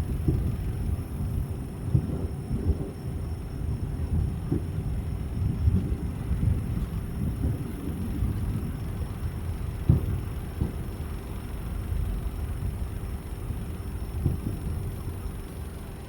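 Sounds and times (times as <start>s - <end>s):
distant fireworks booming: 0.0s - 0.6s, 1.8s - 3.0s, 9.8s - 11.0s, 14.2s - 14.7s
sharp fireworks thuds: 9.8s - 10.9s, 14.2s - 14.6s.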